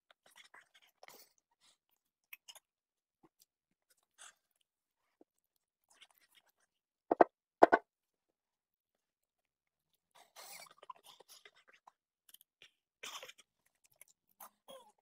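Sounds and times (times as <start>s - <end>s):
loud knock: 7.1s - 7.8s.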